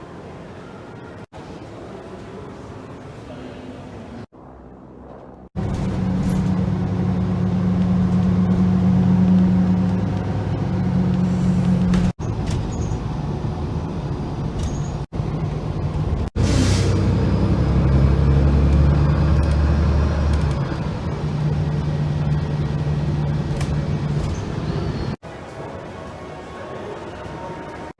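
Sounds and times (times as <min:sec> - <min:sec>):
engine humming: 0:04.4 - 0:25.3.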